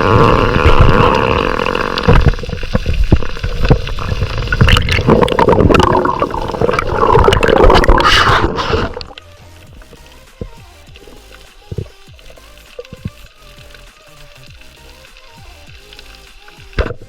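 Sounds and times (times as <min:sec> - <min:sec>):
water sloshing and gurgling: 0:00.0 - 0:14.8.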